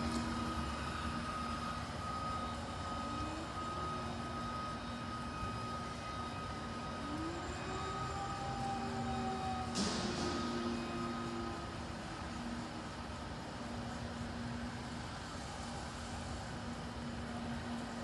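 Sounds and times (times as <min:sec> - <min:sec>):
cleaning machine motor whining: 0:00.0 - 0:12.8.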